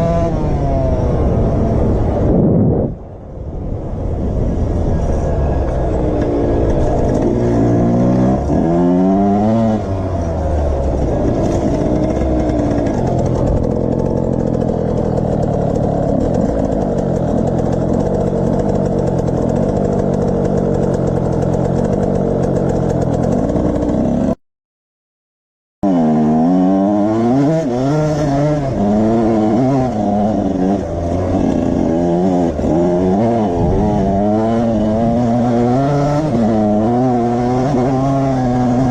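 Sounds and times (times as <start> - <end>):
motorcycle engine revving: 0.0 - 24.4, 25.8 - 38.9.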